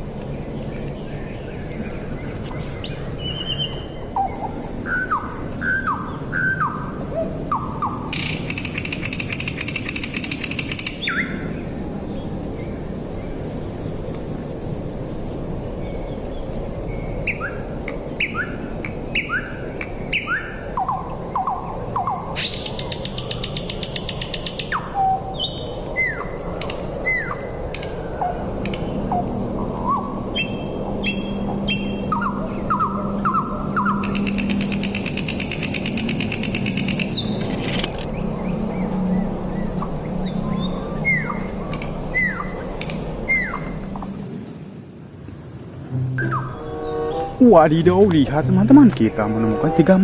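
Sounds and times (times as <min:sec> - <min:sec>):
background hiss: 0:00.0 - 0:50.0
birds chirping: 0:00.0 - 0:50.0
low steady hum: 0:10.9 - 0:50.0.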